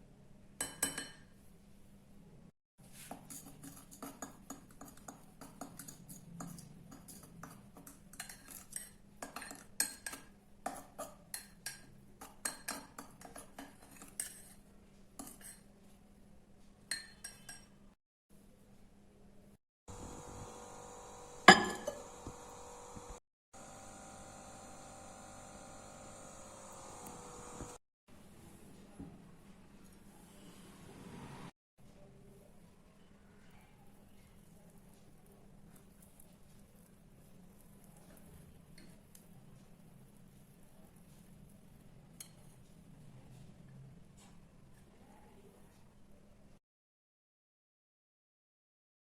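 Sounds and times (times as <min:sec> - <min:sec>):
metal spoon clinking against mug: 0:21.5 - 0:22.0.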